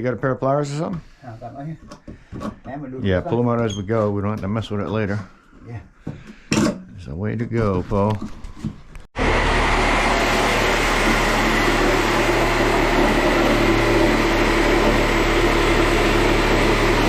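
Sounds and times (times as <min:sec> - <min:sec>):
power saw cutting wood: 0:09.2 - 0:17.0.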